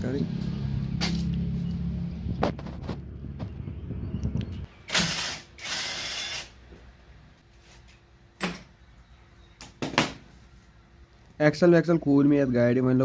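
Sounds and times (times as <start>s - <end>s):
low mechanical rumble: 0.0s - 7.4s.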